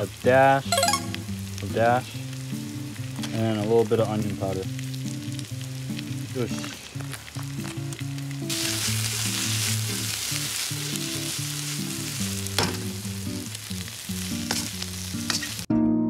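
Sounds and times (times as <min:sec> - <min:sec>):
food sizzling in a wok: 0:00.0 - 0:15.7
knocks against a wok: 0:12.6 - 0:12.8.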